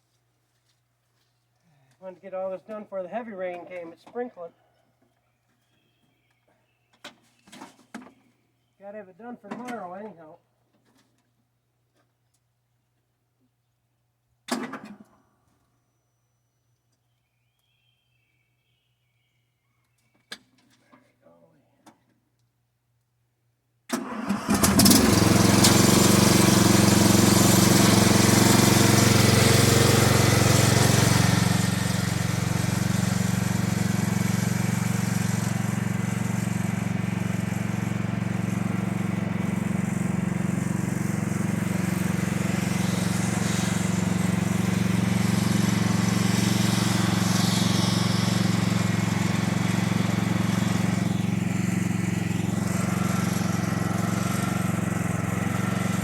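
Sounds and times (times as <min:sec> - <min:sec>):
engine running steadily: 0:24.5 - 0:56.0.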